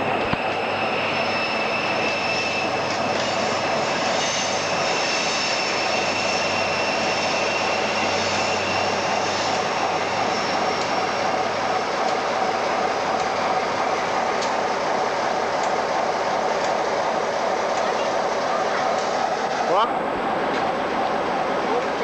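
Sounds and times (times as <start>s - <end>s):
high-pitched whine: 0.0s - 14.2s
locomotive mechanical rumble: 0.0s - 22.0s.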